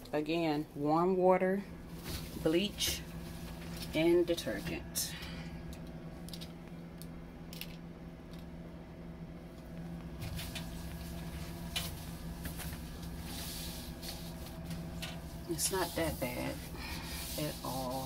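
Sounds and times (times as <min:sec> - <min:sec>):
steady low hum: 0:00.0 - 0:18.0
wet cloth wiping: 0:10.3 - 0:18.0.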